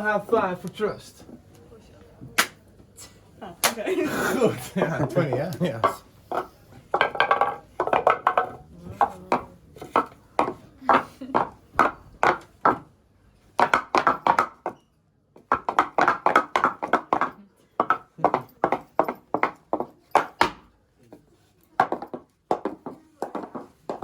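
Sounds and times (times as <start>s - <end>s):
wooden clogs clacking on floor: 5.0s - 12.9s, 13.6s - 14.8s, 15.4s - 20.7s, 21.7s - 24.0s.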